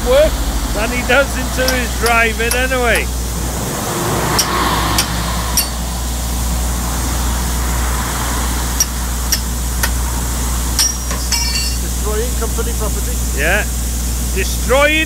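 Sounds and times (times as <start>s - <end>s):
vehicle engine running: 0.0s - 15.0s
sharp knocks: 4.3s - 5.9s.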